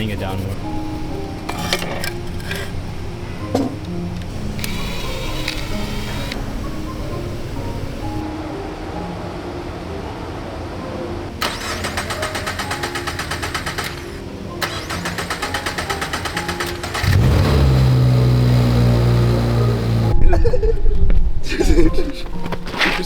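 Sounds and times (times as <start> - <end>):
car starter cranking: 0.6 - 8.2, 11.4 - 20.2
car engine running: 16.4 - 20.2.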